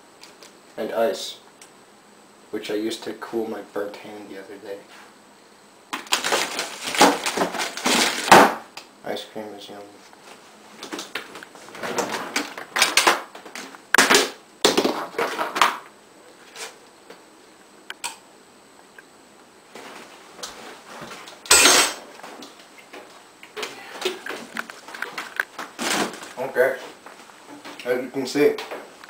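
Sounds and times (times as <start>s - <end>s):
packages clattering in freezer: 6.0s - 8.5s, 10.9s - 15.8s, 24.9s - 26.5s.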